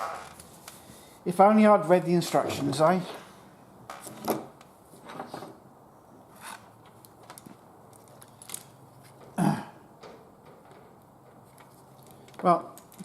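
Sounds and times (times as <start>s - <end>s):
clicks and knocks of handled parts: 6.5s - 9.4s, 10.0s - 13.0s
person clearing throat: 9.4s - 9.8s.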